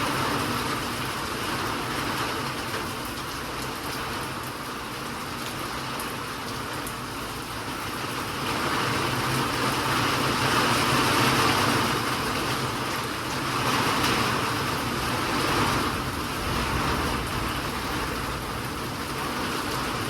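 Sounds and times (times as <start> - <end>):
rain hiss: 0.0 - 20.0
low engine hum: 14.1 - 20.0.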